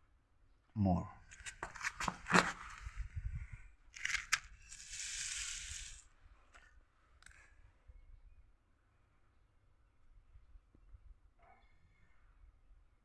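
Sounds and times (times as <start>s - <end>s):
rustling: 1.3s - 3.0s, 4.0s - 6.1s.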